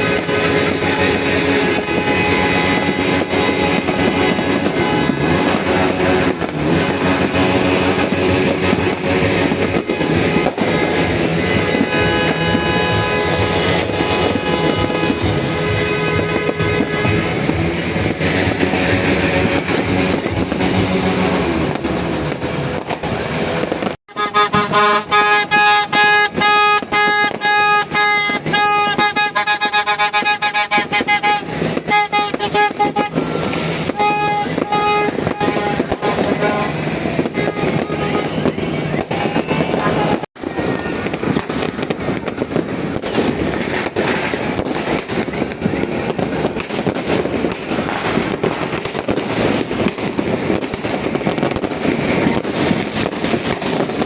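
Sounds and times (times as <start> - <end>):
held horn-like tone: 0.0 - 42.5
fireworks cracks: 0.0 - 54.0
horns tooting: 0.0 - 54.0.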